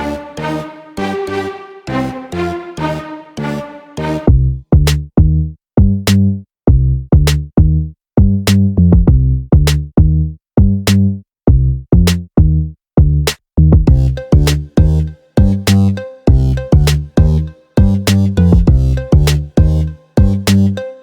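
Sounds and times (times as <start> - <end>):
deep bass note: 4.3 - 5.5, 11.5 - 20.4
electronic drum-machine beat: 13.8 - 21.0.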